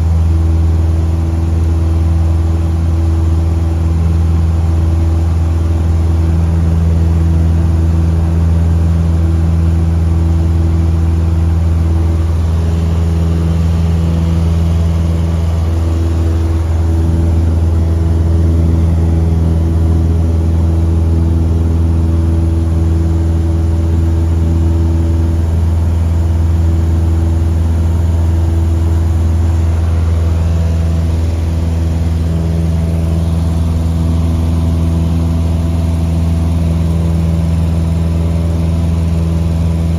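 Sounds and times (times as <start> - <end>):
airplane engine and propeller droning: 0.0 - 39.9.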